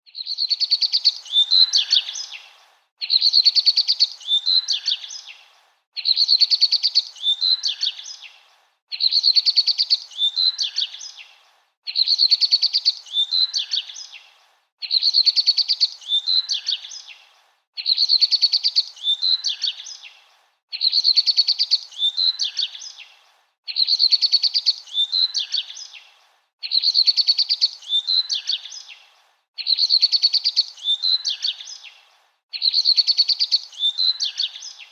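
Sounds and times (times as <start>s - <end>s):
bird chirping and trilling: 20.8s - 23.0s, 23.7s - 26.0s, 26.6s - 28.9s, 29.6s - 31.9s, 32.6s - 34.9s.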